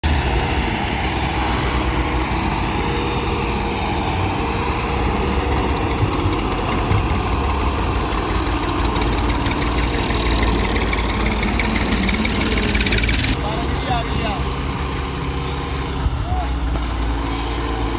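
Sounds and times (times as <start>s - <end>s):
heavy diesel engine running: 0.0s - 17.9s.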